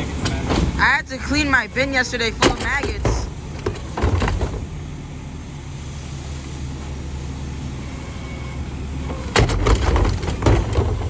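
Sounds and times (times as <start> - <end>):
garbage truck engine idling: 0.0 - 11.0
loud bangs and clatter: 2.3 - 4.9, 9.1 - 11.0.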